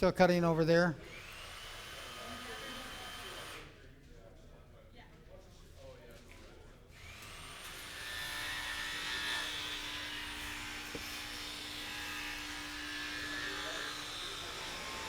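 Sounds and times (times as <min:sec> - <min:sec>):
electric jigsaw cutting wood: 0:01.0 - 0:03.7, 0:07.0 - 0:15.0.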